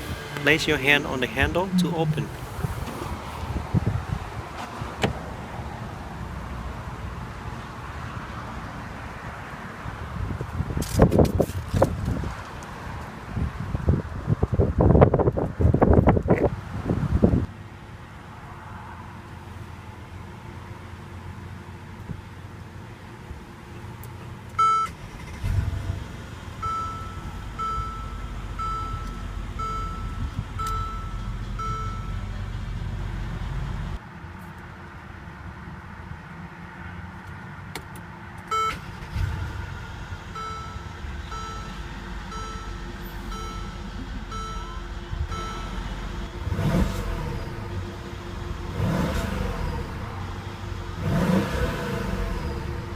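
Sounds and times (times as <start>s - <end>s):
car warning chime dinging: 0.0s - 3.4s, 26.6s - 32.2s, 38.5s - 38.9s, 40.4s - 52.0s
car engine idling and revving: 0.0s - 34.1s, 34.9s - 52.9s.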